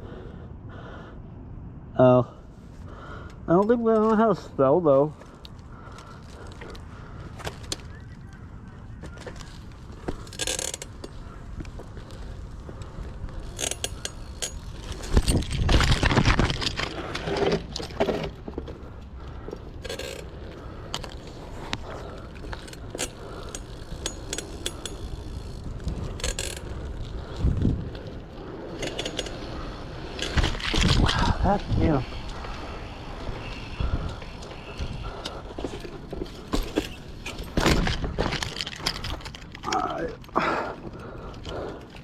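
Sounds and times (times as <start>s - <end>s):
rumbling: 9.6s - 42.0s
bicycle freewheel clicking: 13.3s - 15.2s, 22.5s - 27.6s.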